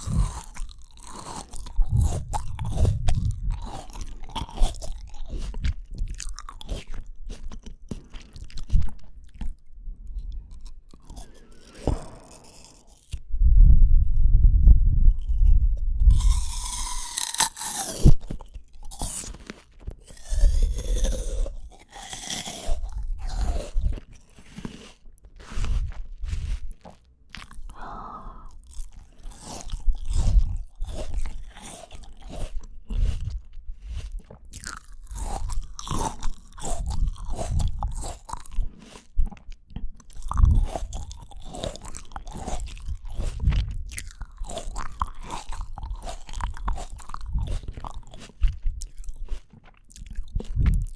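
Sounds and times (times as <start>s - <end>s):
crisp fruit bites and crunches: 0.0s - 13.2s, 15.1s - 50.9s
wet mouth sounds: 0.0s - 13.2s, 15.0s - 50.9s.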